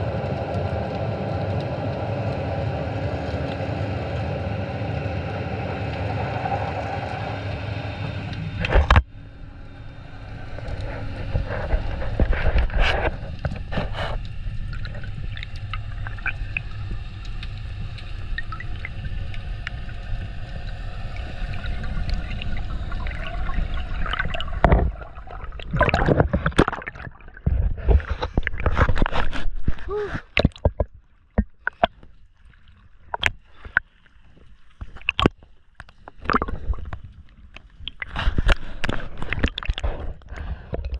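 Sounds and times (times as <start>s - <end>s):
underwater motor drone: 0.0s - 29.1s
water noise with clicks: 0.2s - 2.5s, 3.2s - 4.3s, 8.3s - 9.1s, 10.4s - 40.9s
gurgling bubbly splashes: 9.8s - 32.4s, 36.1s - 37.0s, 37.8s - 40.9s.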